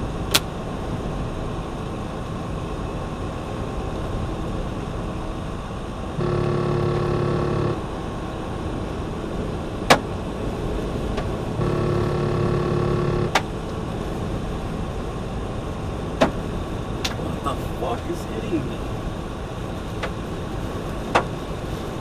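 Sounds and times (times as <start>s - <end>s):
truck road and engine noise: 0.0s - 22.0s
steady pitched tone: 6.2s - 7.8s, 11.6s - 13.3s.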